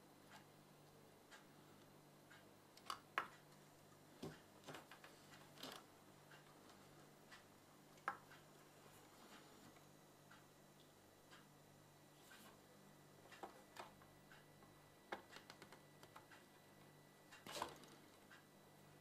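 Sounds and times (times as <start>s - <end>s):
low steady hum: 0.0s - 19.0s
faint small clicks and taps: 13.2s - 18.5s.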